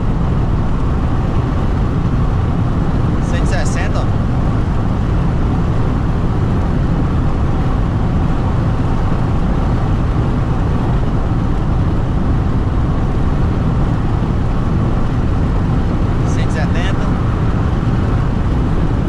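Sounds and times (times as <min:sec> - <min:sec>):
wind and road noise in car: 0:00.0 - 0:19.0.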